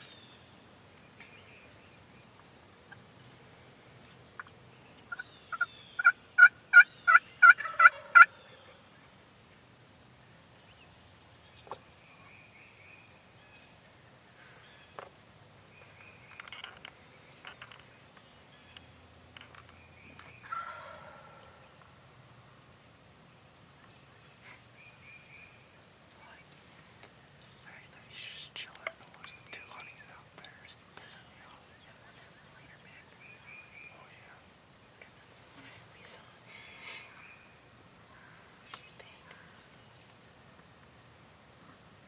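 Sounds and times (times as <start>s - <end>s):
turkey yelping: 5.1s - 8.4s, 20.4s - 21.4s.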